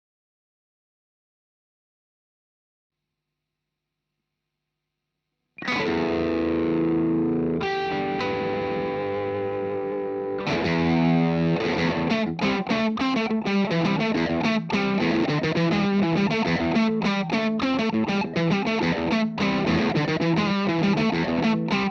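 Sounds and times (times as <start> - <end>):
distorted electric guitar: 5.6 - 21.9.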